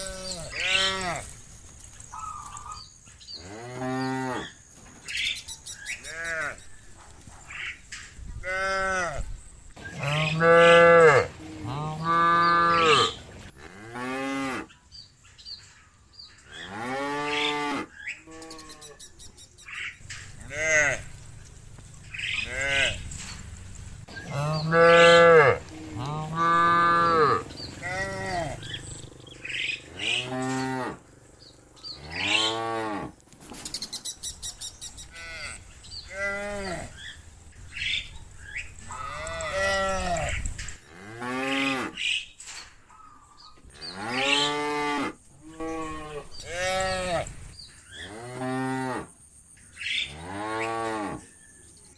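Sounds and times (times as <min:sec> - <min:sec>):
cows mooing: 0:00.0 - 0:01.4, 0:03.4 - 0:04.6, 0:08.4 - 0:09.3, 0:09.9 - 0:14.7, 0:16.4 - 0:19.0, 0:20.0 - 0:31.2, 0:31.8 - 0:33.2, 0:35.1 - 0:37.1, 0:38.9 - 0:42.1, 0:43.8 - 0:49.1, 0:50.0 - 0:51.3.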